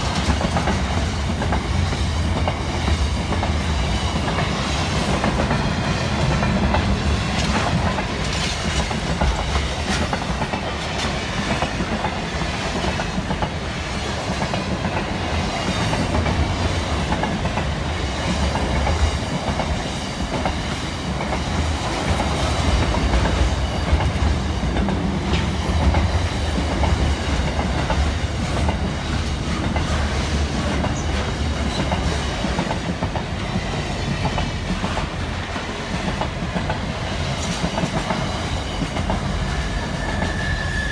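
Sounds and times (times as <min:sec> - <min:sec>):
wheels clicking over rail joints: 0:00.0 - 0:13.6
freight train rumbling: 0:00.0 - 0:40.9.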